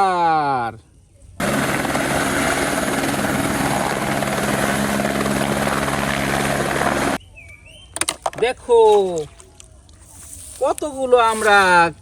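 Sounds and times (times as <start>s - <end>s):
helicopter rotor drone: 1.4s - 7.2s.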